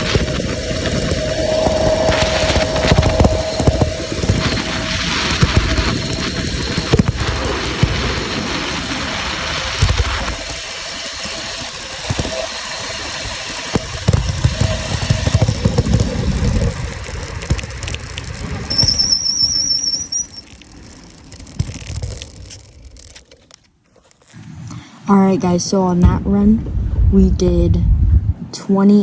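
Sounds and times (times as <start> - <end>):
high wavering squeal: 0.0 - 7.6, 18.7 - 20.6
wind buffeting microphone: 0.0 - 10.5, 25.5 - 28.6.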